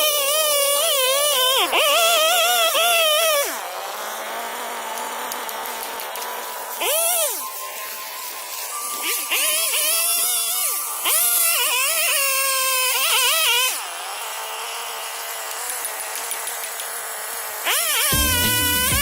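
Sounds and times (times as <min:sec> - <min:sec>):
chainsaw engine revving: 0:00.0 - 0:19.0
steady hissing: 0:00.0 - 0:19.0
music with bass beat: 0:18.1 - 0:19.0.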